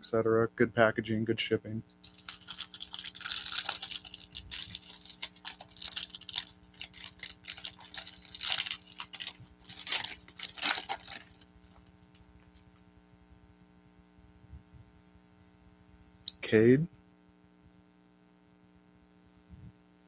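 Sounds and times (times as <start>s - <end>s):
faint electrical hum: 0.0s - 20.0s
plastic wrapper crinkling and tearing: 1.9s - 12.8s.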